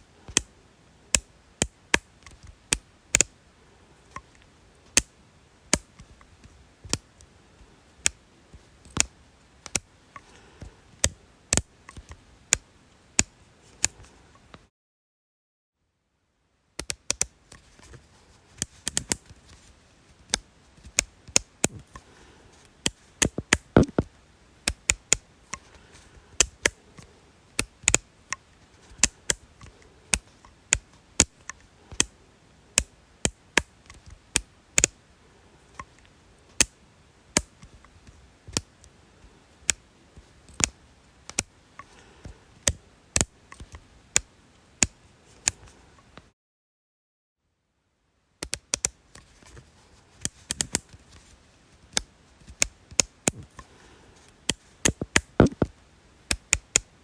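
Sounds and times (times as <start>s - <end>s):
sharp crisp clicks: 22.8s - 25.6s, 26.4s - 28.4s, 54.5s - 57.0s.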